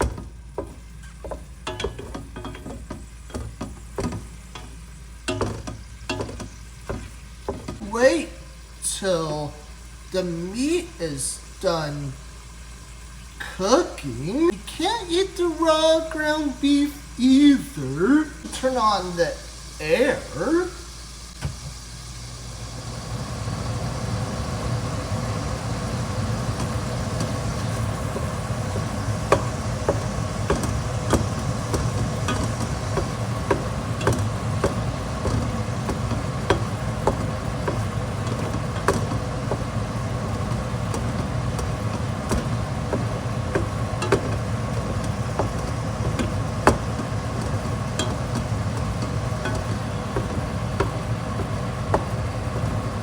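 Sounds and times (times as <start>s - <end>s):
ventilation fan whooshing: 0.0s - 12.3s, 13.4s - 53.0s
light clicks and taps: 26.6s - 52.9s.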